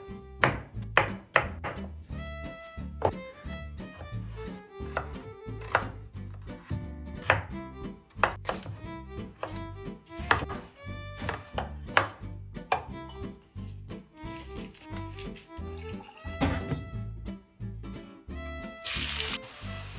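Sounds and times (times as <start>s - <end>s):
background music: 0.0s - 19.9s
knife chopping on cutting board: 0.4s - 1.9s, 4.8s - 9.6s, 10.2s - 13.0s.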